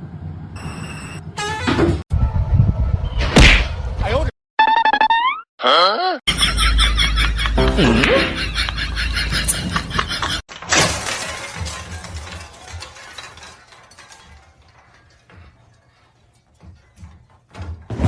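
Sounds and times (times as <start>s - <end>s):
loud shattering crash: 10.5s - 15.3s
clinks and rattles: 10.5s - 17.9s.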